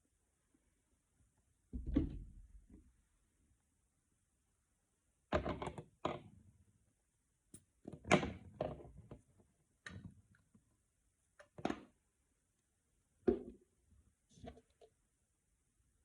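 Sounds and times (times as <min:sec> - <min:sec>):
plastic bottles knocking and thudding: 0:13.2 - 0:13.7.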